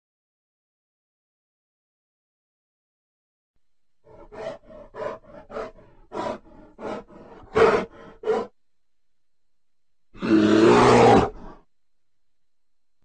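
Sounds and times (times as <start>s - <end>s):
bear short calls: 4.1s - 8.5s
bear roaring: 4.1s - 8.6s, 10.2s - 11.7s.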